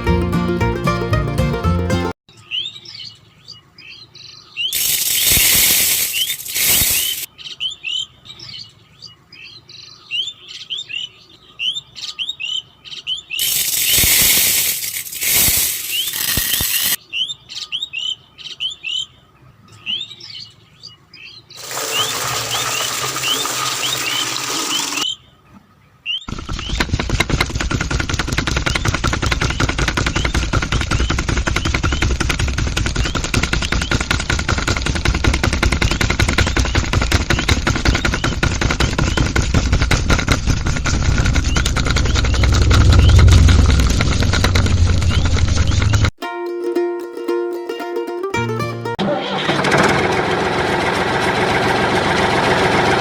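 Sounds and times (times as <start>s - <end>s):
fast rattling machine: 4.8s - 7.3s, 13.4s - 17.0s, 21.6s - 25.0s, 26.3s - 45.6s
loud hissing rushes: 4.8s - 7.3s.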